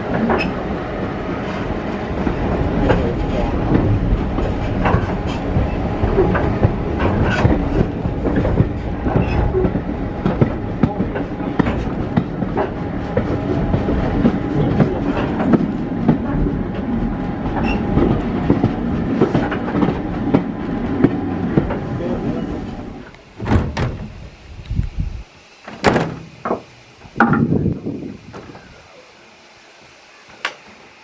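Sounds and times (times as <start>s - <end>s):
wheels clicking over rail joints: 0.0s - 0.8s, 1.4s - 24.8s
rumble of wheels on rail: 0.0s - 31.0s.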